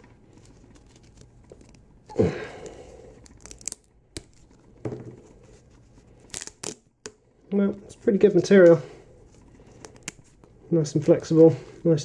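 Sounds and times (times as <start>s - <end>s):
plastic stretching and tearing: 3.0s - 4.7s, 6.1s - 6.9s.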